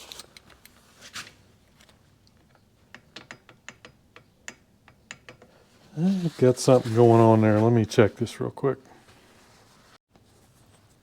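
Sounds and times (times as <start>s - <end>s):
metal parts clicking and tapping: 2.3s - 5.6s
soft rustle: 5.6s - 11.0s.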